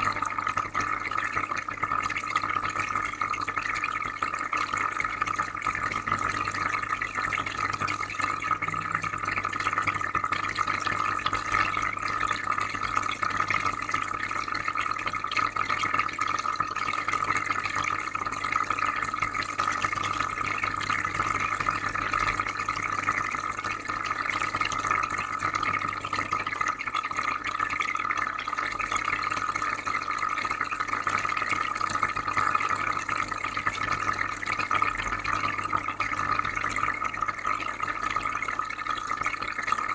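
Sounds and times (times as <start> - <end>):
water trickling and bubbling: 0.0 - 39.9
low constant hum: 5.0 - 11.8.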